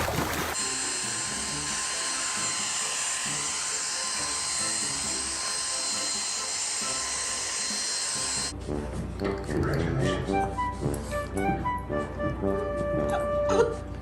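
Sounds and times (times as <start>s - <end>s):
high-pitched motor whine: 0.6s - 8.5s
music playing: 8.4s - 14.0s.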